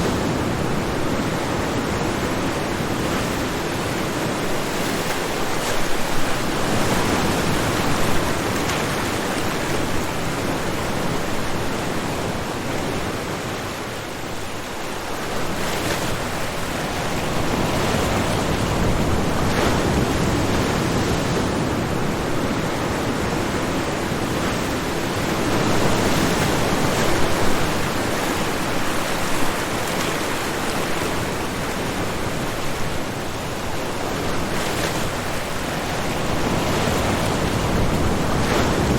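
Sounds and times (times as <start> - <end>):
ocean waves breaking: 0.0 - 38.9.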